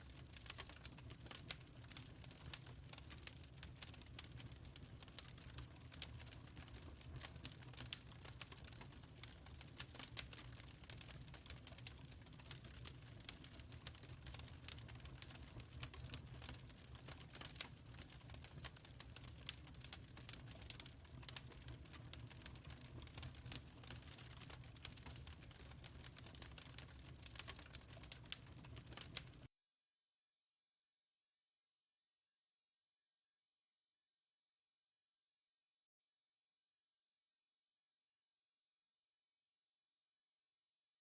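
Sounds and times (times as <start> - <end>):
wood fire crackling: 0.0 - 29.5.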